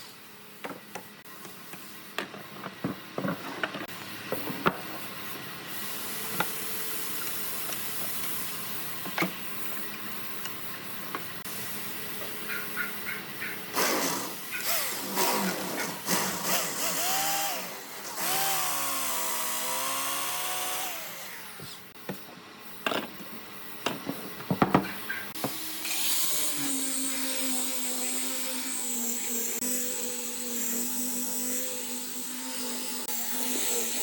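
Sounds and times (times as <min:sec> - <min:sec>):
motor humming with high hiss: 0:04.0 - 0:24.2
woodworking power tools: 0:05.8 - 0:10.0, 0:13.7 - 0:22.0, 0:24.6 - 0:34.0.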